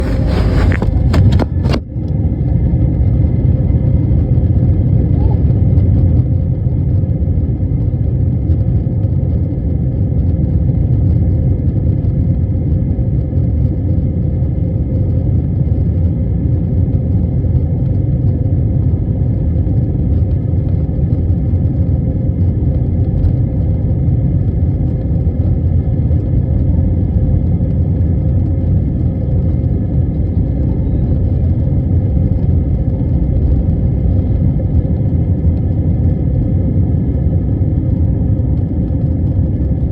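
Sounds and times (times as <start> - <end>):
brief crackles: 0.0 - 1.8
jet airliner engines rumbling: 0.0 - 39.9.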